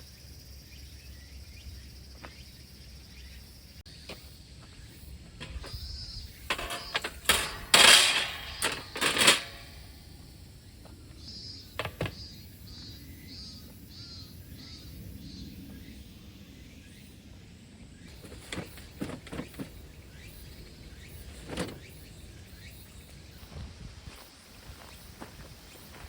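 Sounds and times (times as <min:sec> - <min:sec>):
bird chirping: 0:00.0 - 0:07.3
hard objects clattering: 0:06.4 - 0:10.0.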